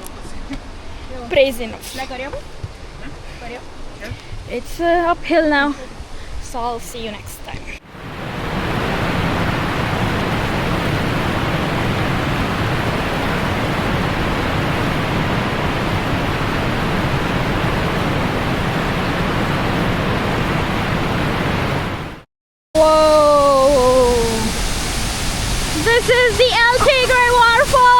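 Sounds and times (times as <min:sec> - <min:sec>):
waterfall rushing water: 0:07.8 - 0:22.2, 0:22.8 - 0:27.9.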